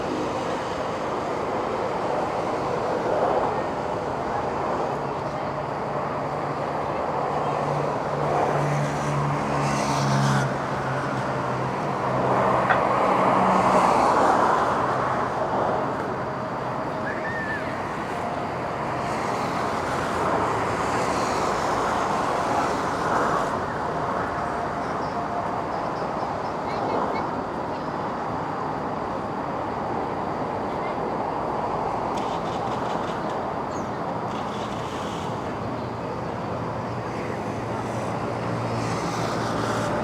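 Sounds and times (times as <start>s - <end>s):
vehicles passing: 0.0s - 40.0s.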